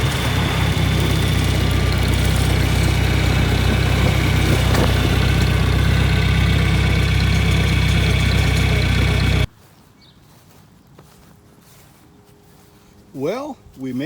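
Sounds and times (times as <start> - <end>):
tractor engine running: 0.0 - 9.5.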